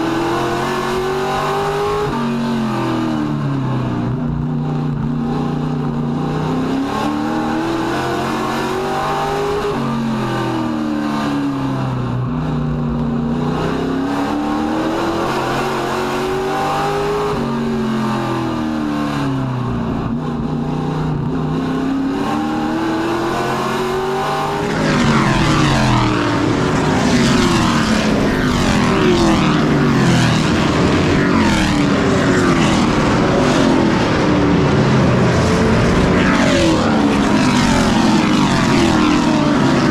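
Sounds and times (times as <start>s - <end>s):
race truck engines: 0.0s - 39.9s.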